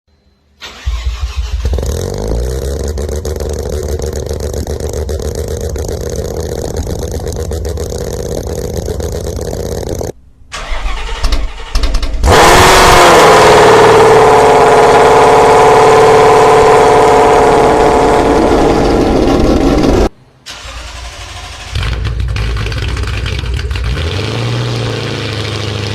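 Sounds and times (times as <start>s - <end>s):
another engine starting: 0.6s - 12.8s, 18.7s - 24.8s
car engine starting and idling: 0.6s - 25.9s.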